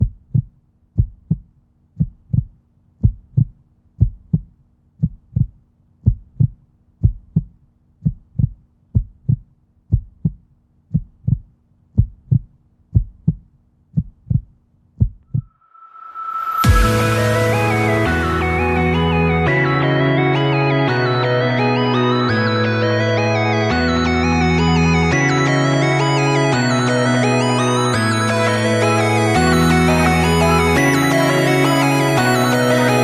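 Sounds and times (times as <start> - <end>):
heartbeat thumps: 0.0 - 15.5
rising swell: 15.6 - 33.0
music: 16.1 - 33.0.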